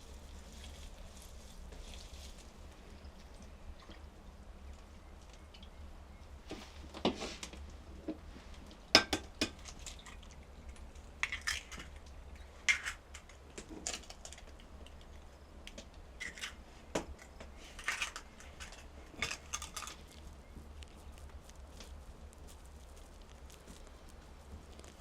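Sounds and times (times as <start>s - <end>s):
scraping and rustling: 0.0s - 3.3s, 6.5s - 8.9s, 16.2s - 25.0s.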